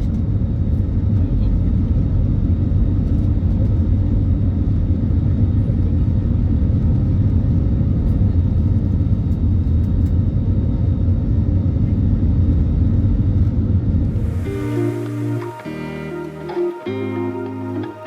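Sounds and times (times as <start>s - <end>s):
airplane cabin engine rumble: 0.0s - 18.0s.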